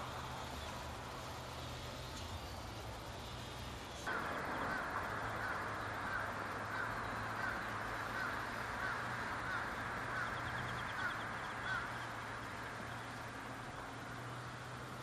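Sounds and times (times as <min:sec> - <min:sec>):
steady background hum: 0:00.0 - 0:15.0
bird ticking trill: 0:03.2 - 0:15.0
bird calling: 0:04.1 - 0:13.3.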